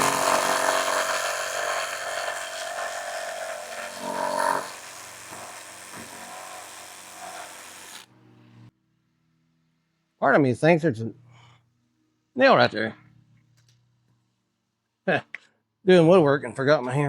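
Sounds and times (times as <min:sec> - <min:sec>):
electric saw cutting wood: 0:00.0 - 0:08.7.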